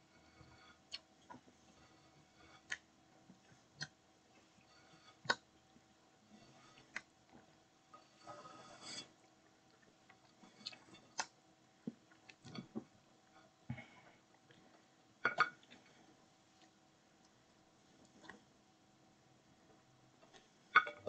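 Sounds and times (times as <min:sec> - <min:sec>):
person chewing food: 0:00.2 - 0:05.5, 0:06.4 - 0:17.4.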